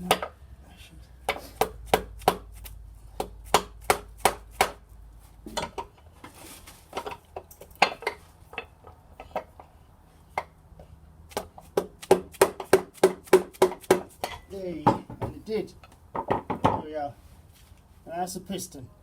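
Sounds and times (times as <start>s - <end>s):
sharp knocks on metal: 1.3s - 2.5s, 3.2s - 4.8s, 11.3s - 15.4s, 16.1s - 16.8s.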